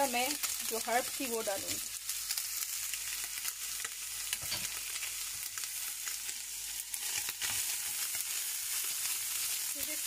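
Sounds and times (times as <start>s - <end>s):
chicken sizzling in a pan: 0.0s - 10.0s.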